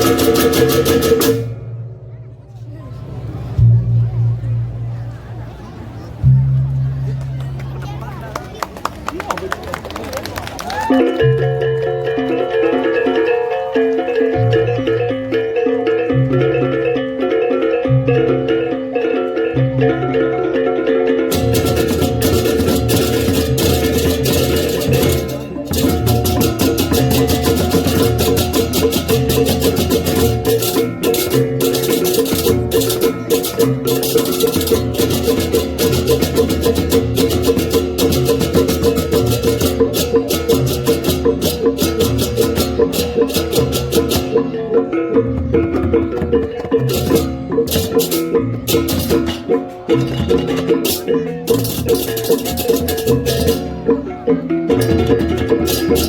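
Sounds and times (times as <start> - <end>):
drum beat: 0.0 - 1.5, 21.3 - 44.5, 45.1 - 53.9
tuned metal gongs: 21.3 - 45.8.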